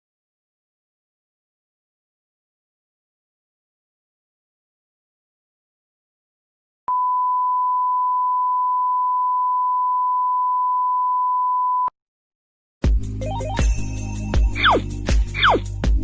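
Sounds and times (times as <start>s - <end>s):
music: 12.8s - 16.0s.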